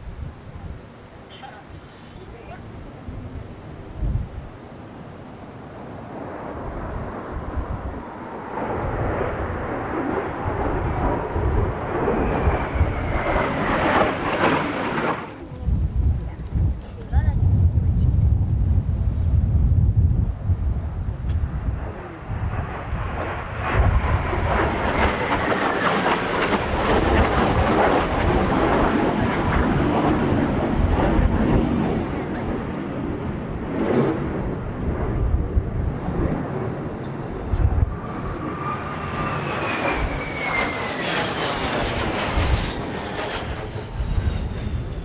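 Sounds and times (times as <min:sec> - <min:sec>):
jet engines flyby: 0:00.0 - 0:45.0
wind buffeting microphone: 0:00.0 - 0:45.0.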